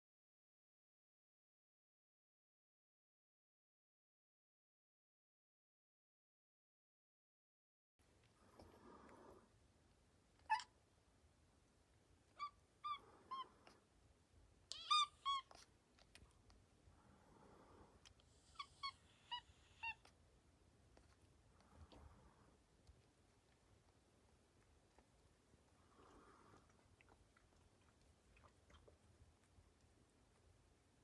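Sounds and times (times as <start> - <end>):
cat chirping meows: 10.4 - 10.8, 12.3 - 13.7, 14.7 - 15.7, 18.5 - 20.1.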